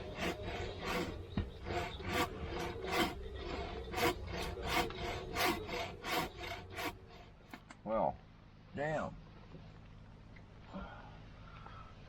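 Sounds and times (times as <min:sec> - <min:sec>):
hand tool rasping wood: 0:00.0 - 0:07.4.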